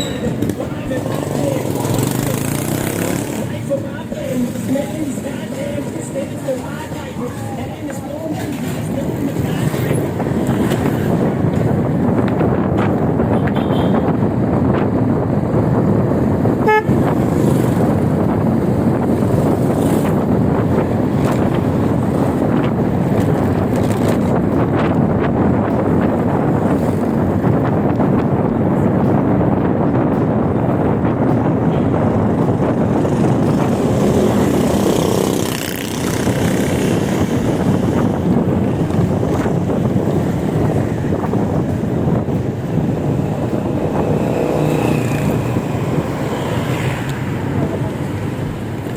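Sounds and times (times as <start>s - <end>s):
short horn beep: 0.0s - 0.4s, 16.6s - 16.9s
wind rushing over microphone: 0.0s - 48.9s.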